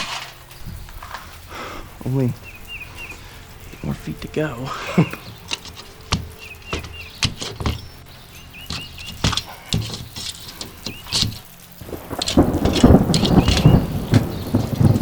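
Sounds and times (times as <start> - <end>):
metal crinkling and rattling: 0.0 - 15.0
sharp metallic knocks: 5.1 - 8.0, 8.6 - 15.0
sheet metal being pried off: 5.2 - 7.8, 8.7 - 11.5.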